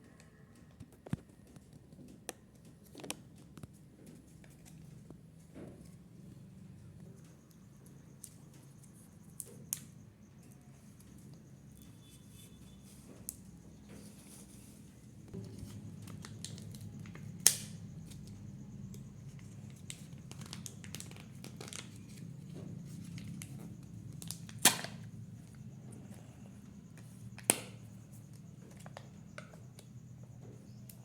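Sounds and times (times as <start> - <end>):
plastic packaging crinkling: 19.4 - 22.2.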